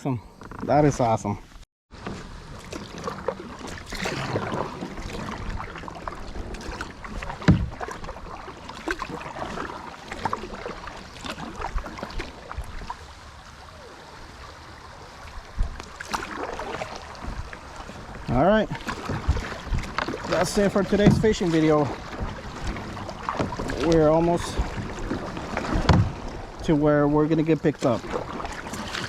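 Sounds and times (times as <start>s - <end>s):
paddle strokes splashing: 2.0s - 29.0s
knocks on kayak hull: 7.4s - 7.8s, 25.6s - 26.2s.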